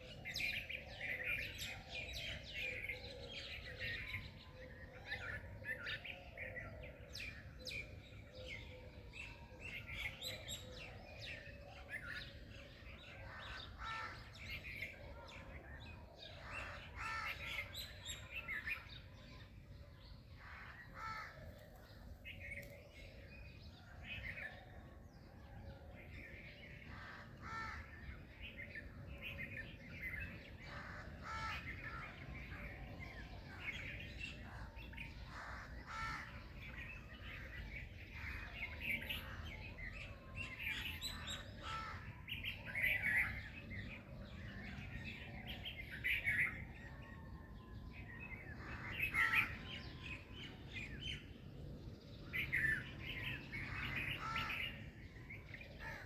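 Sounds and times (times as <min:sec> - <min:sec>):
songbirds chirping and singing: 0:00.0 - 0:56.0.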